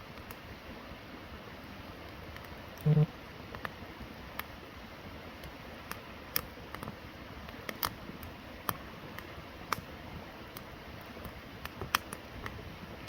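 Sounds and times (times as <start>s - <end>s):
steady background hiss: 0.0s - 13.0s
campfire crackling and popping: 1.9s - 2.9s, 3.5s - 4.6s, 5.4s - 13.0s.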